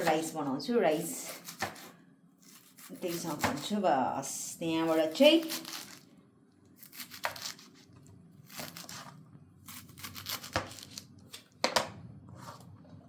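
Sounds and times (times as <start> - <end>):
greens tearing and rustling: 5.4 - 6.1, 9.8 - 11.1.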